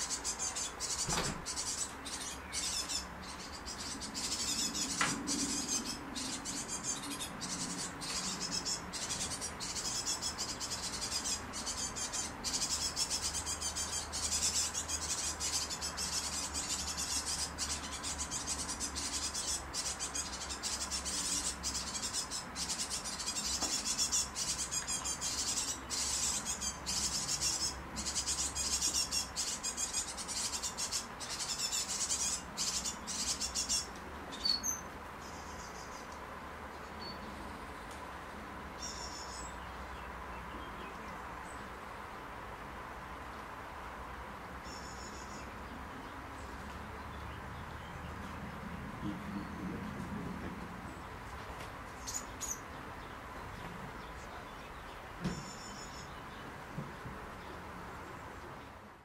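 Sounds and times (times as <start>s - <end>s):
fledglings begging calls: 0.0s - 36.1s.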